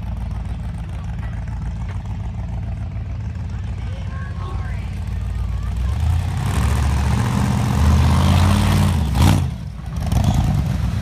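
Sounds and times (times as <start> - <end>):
car engine revving: 3.6 - 11.0.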